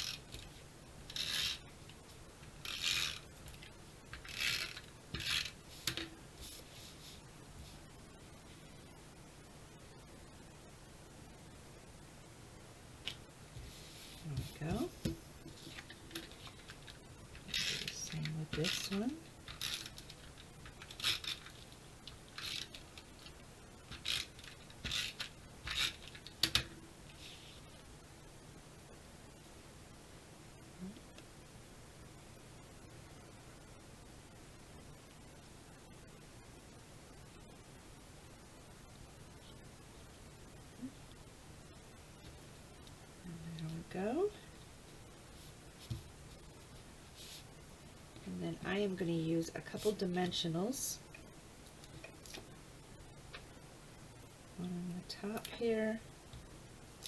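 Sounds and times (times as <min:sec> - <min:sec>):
tape runner scratchy zip on card: 0:01.1 - 0:01.6, 0:04.2 - 0:05.6.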